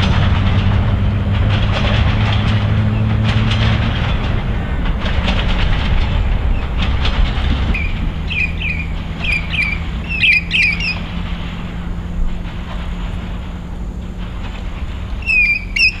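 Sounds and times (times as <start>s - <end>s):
steady low hum: 0.0s - 16.0s
train rumbling past: 0.0s - 16.0s
train wheel clicks: 0.0s - 16.0s
bird chirping: 7.6s - 11.3s, 15.0s - 16.0s.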